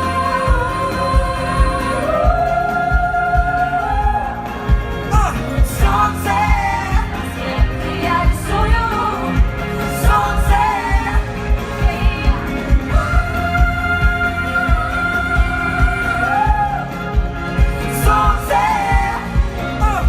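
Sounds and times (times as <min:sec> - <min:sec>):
person singing: 0:00.0 - 0:20.0
pop song by band: 0:00.0 - 0:20.0
steady drum beat: 0:00.0 - 0:20.0.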